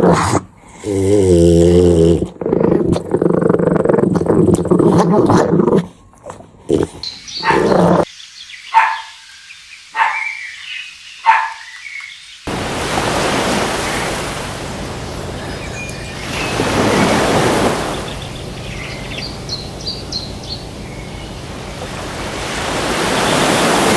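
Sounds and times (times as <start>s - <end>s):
dog growling: 0.0s - 8.1s
dog barking: 4.1s - 8.1s, 8.7s - 9.2s, 10.0s - 10.4s, 11.2s - 11.7s.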